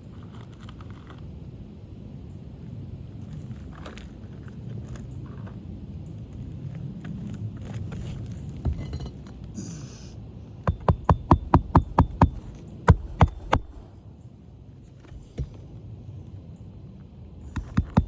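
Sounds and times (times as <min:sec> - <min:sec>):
hammer striking roofing nails: 0:10.6 - 0:13.8, 0:17.5 - 0:18.0.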